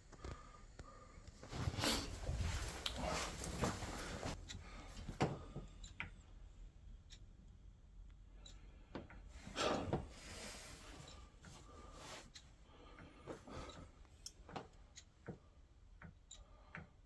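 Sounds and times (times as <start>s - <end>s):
faint handling knocks and clicks: 0.0s - 6.2s, 8.4s - 17.0s
rustling scrape: 1.5s - 4.4s.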